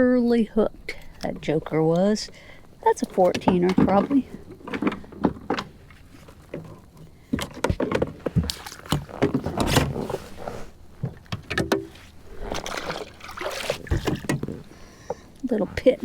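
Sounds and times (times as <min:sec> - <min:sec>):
knocks and taps in kayak: 0:03.0 - 0:10.0, 0:11.0 - 0:12.0, 0:13.7 - 0:15.2.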